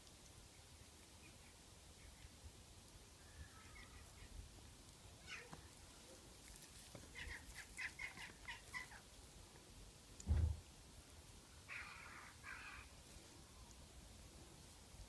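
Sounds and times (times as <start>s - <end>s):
faint short animal calls: 5.2s - 5.7s, 11.7s - 12.9s.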